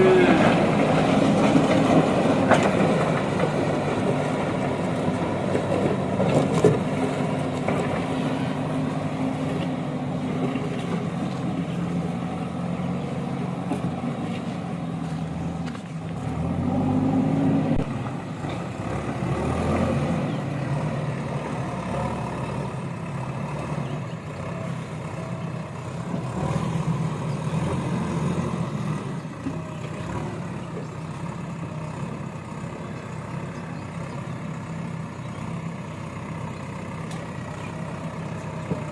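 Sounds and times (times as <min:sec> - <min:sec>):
heavy diesel engine revving: 0:00.0 - 0:38.9.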